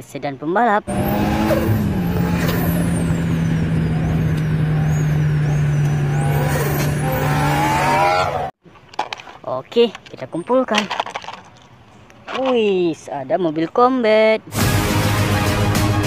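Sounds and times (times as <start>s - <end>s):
car engine droning: 0.9s - 8.5s.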